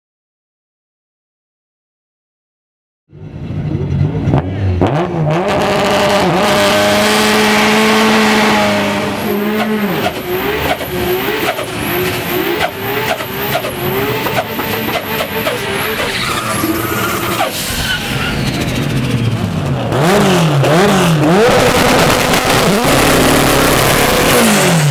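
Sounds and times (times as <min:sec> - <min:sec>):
drag car engine revving: 0:03.1 - 0:24.9.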